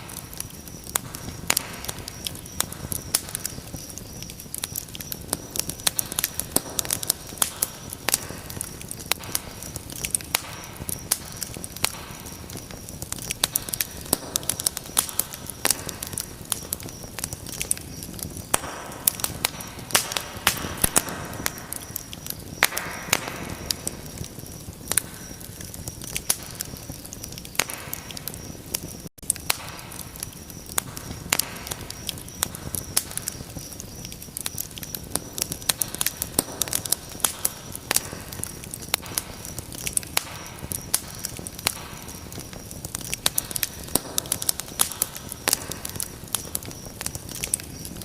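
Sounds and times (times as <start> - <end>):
fire hissing: 0.0 - 48.0
fire popping: 0.0 - 48.0
wood fire crackling: 0.0 - 48.0.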